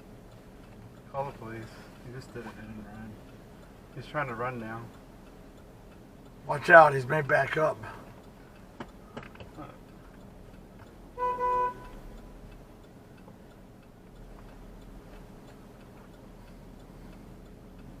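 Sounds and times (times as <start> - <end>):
faint ticking: 0.0 - 18.0
low steady background: 0.0 - 18.0
car horn honk: 11.2 - 12.1.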